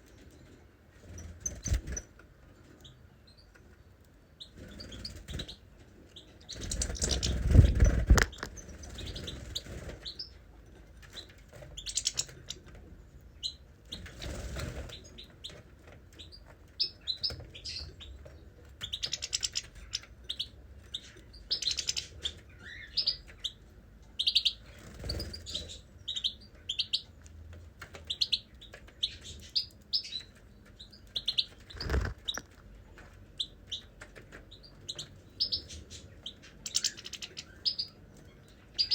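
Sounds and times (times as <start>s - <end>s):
small birds chirping: 0.0s - 38.9s
rustling thumps: 31.7s - 32.6s.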